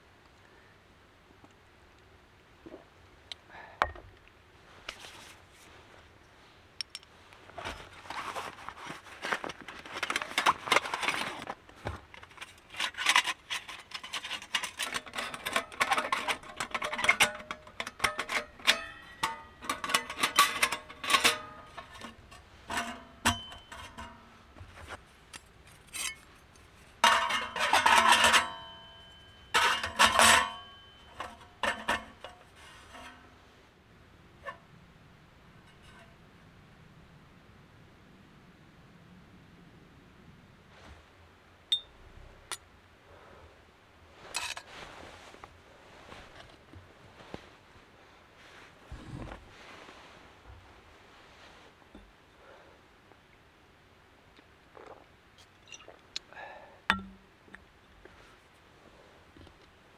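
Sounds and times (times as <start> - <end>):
rustling: 4.7 - 33.5, 44.1 - 52.1
metal items clinking: 7.6 - 33.2.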